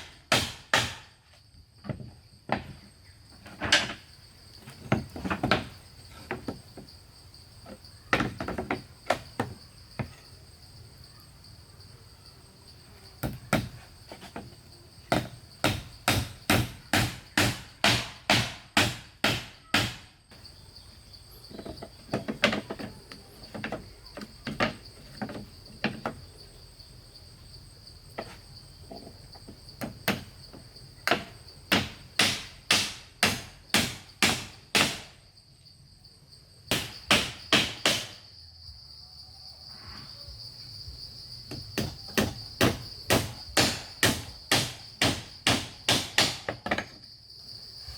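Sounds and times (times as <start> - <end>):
hand tool striking wood: 0.0 - 1.2, 1.8 - 2.8, 8.1 - 10.2, 13.2 - 14.5, 15.1 - 20.1, 21.5 - 26.2, 28.2 - 35.2, 36.7 - 38.2, 41.5 - 47.0.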